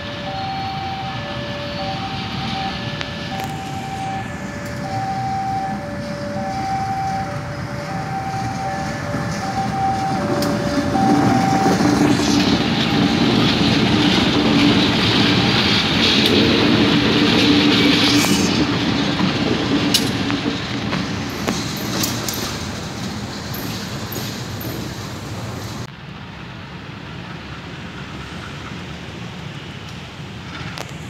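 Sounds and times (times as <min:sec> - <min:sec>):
level-crossing alarm two-tone: 0:00.0 - 0:18.0
diesel locomotive passing: 0:00.0 - 0:31.0
wheels clicking over rail joints: 0:12.7 - 0:25.9.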